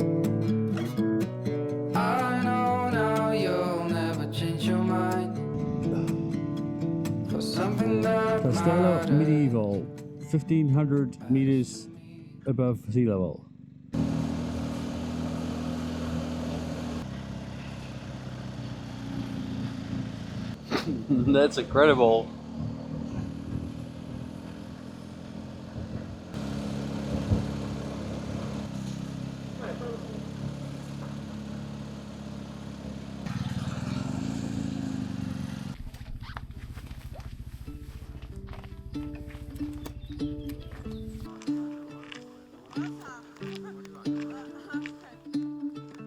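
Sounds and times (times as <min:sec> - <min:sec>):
motorcycle engine running: 0:13.4 - 0:41.3.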